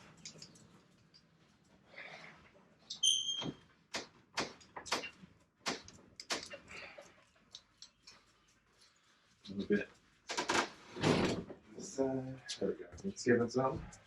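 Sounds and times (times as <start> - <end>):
high squeak: 2.9 - 3.6.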